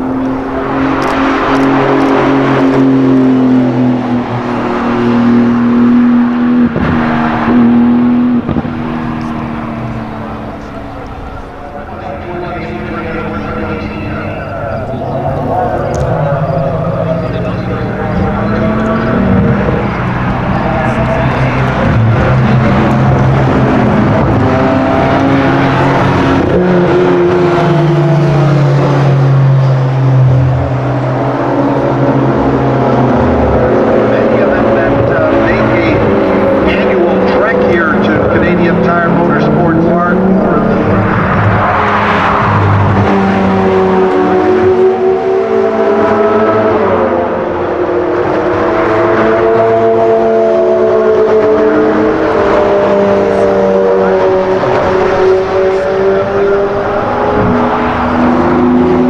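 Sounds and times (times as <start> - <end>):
sports car engine running: 0.0 - 59.0.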